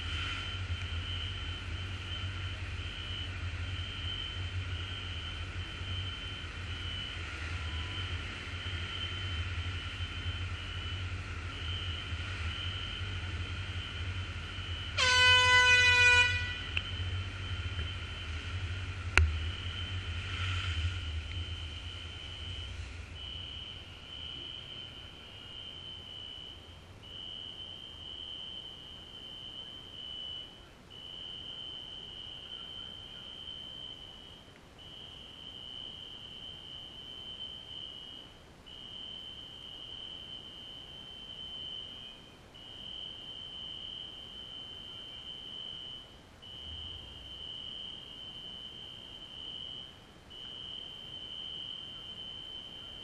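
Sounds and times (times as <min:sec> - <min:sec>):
low rumble: 0:00.0 - 0:15.0, 0:15.8 - 0:28.4.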